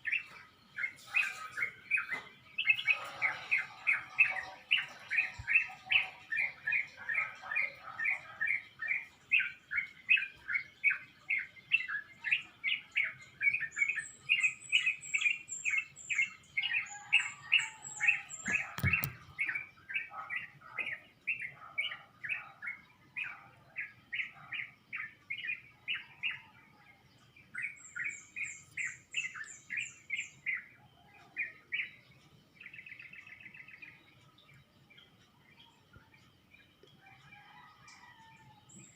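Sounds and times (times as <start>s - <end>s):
birds chirping: 0.0s - 38.9s
high thin birdsong: 0.0s - 38.9s
sharp click: 18.8s - 19.2s.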